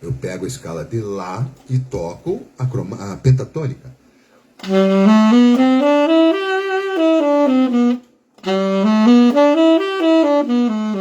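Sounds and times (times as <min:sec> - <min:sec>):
saxophone scale run: 0:04.6 - 0:11.0.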